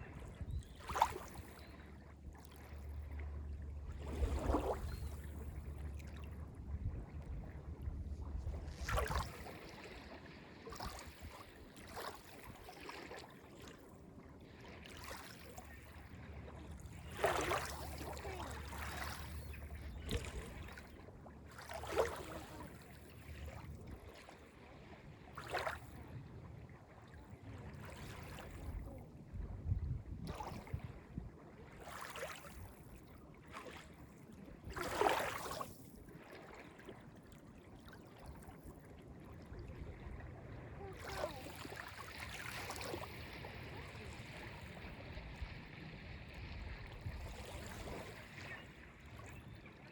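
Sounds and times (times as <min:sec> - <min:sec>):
waves lapping on beach: 0:00.0 - 0:05.7, 0:08.0 - 0:29.1, 0:31.5 - 0:38.4, 0:39.6 - 0:49.9
low steady rumble: 0:00.0 - 0:10.1.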